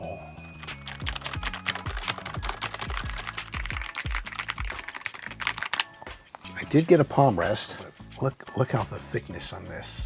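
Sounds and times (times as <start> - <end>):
background music with steady beat: 0.0 - 10.0
mechanical keyboard typing: 0.6 - 6.1.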